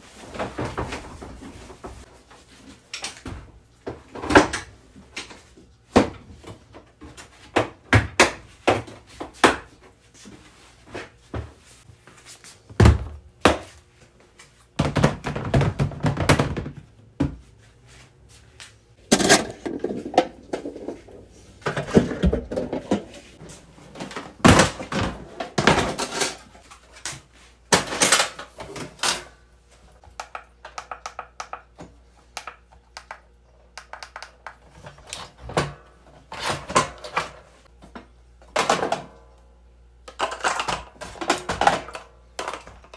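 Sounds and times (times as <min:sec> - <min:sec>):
camping gear knocking and clattering: 0:19.0 - 0:23.4.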